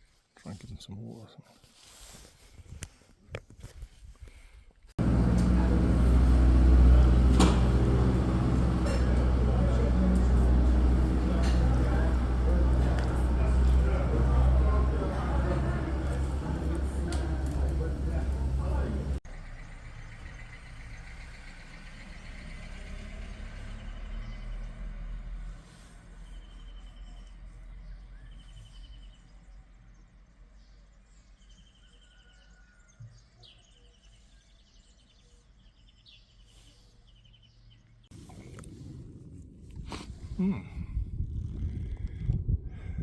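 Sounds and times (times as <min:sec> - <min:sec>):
outdoor background noise: 0:00.0 - 0:42.6
low rumble: 0:38.1 - 0:43.0.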